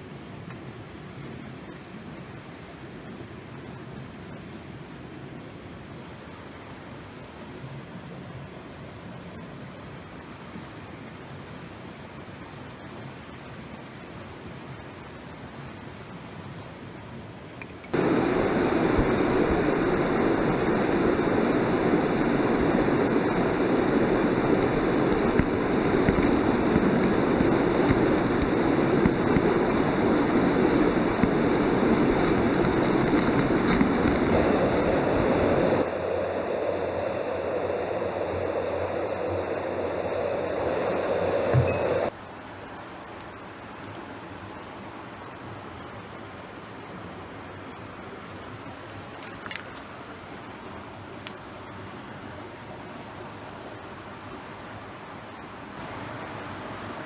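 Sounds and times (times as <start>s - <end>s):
stream water flowing: 17.9s - 53.6s.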